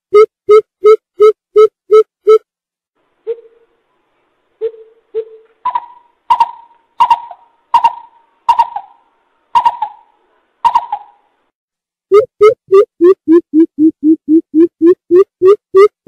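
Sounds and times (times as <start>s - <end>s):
coucal hollow hooting: 3.2s - 3.8s, 4.6s - 11.4s.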